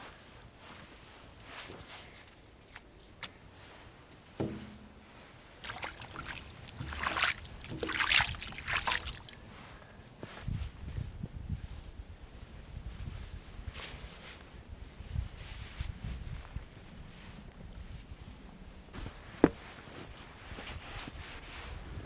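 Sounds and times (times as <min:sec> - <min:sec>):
light knocks: 0:04.4 - 0:04.9
water sloshing and splashing: 0:05.5 - 0:10.0.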